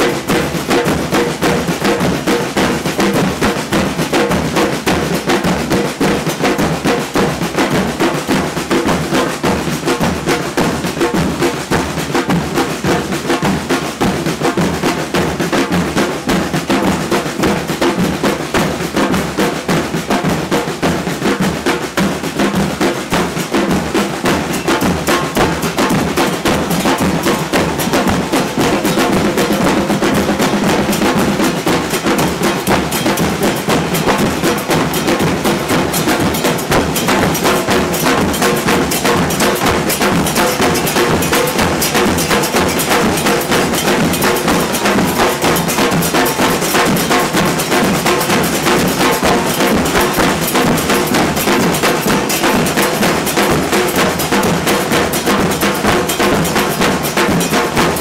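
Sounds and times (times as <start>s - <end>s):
snare drums: 0.0s - 58.0s
bass drums: 16.1s - 46.6s.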